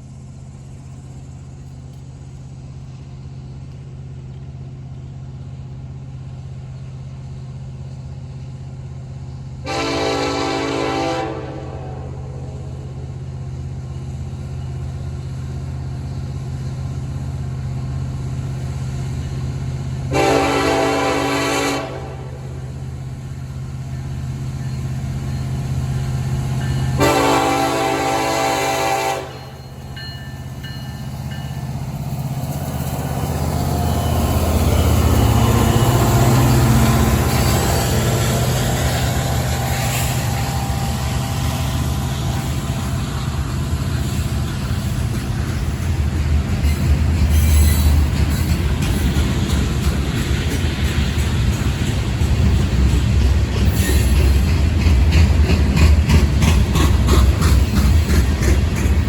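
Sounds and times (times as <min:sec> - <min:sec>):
diesel locomotive rumble: 0:00.0 - 0:59.0
train wheel noise: 0:00.0 - 0:59.0
train air horn blasts: 0:09.6 - 0:12.7, 0:20.1 - 0:22.6, 0:26.9 - 0:29.8.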